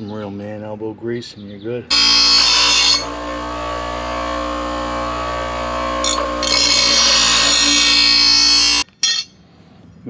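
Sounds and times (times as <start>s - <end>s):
blade hissing against grinding wheel: 1.9s - 8.8s
electric grinder motor running: 1.9s - 8.8s.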